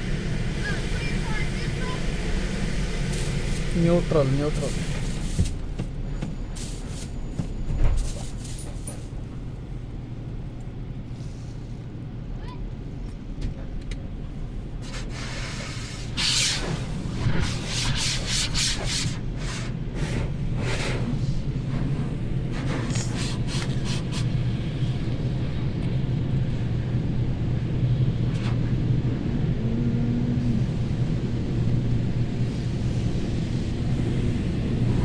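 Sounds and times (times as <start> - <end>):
car wash hissing swishes: 0.0 - 5.8, 14.8 - 25.1.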